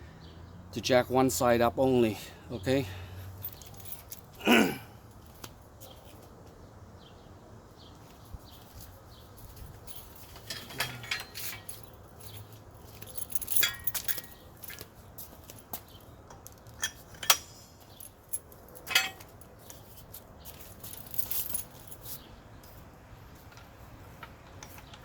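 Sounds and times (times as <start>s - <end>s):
floor jack metal clinks: 10.3s - 11.9s.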